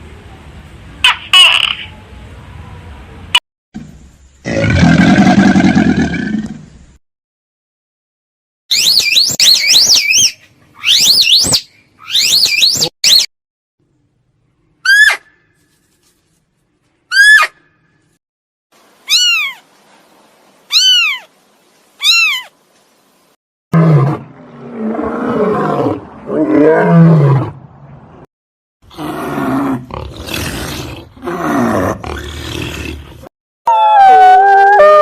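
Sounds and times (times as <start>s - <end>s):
high-pitched animal calls: 8.7s - 13.3s, 19.0s - 19.6s, 20.7s - 21.3s, 22.0s - 22.5s
big cat growling and roaring: 23.8s - 27.8s, 28.9s - 33.3s.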